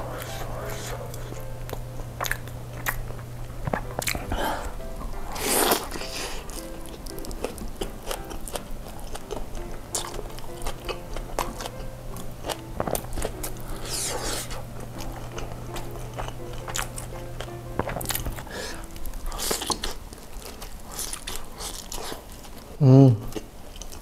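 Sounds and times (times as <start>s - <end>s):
wet chewing mouth sounds: 0.1s - 24.0s
crunching: 17.8s - 24.0s
biting into food: 19.2s - 22.6s.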